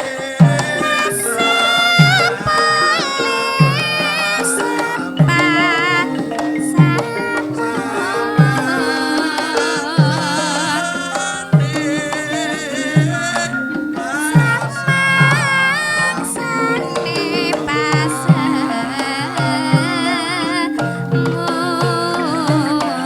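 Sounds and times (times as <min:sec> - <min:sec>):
gamelan music: 0:00.0 - 0:23.0.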